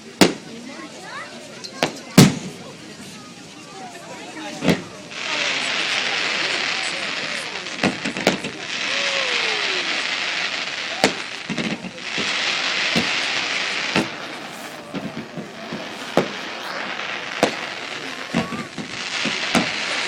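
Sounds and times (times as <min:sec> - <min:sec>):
fireworks bangs: 0:00.1 - 0:00.6, 0:01.6 - 0:20.0
steady hiss: 0:02.0 - 0:20.0.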